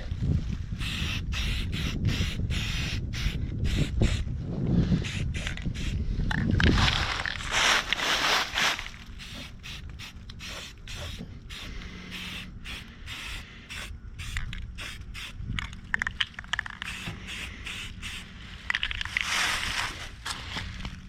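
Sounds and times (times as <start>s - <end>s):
spray can hissing: 0.8s - 4.2s, 5.0s - 6.0s, 9.2s - 15.4s, 16.8s - 18.3s.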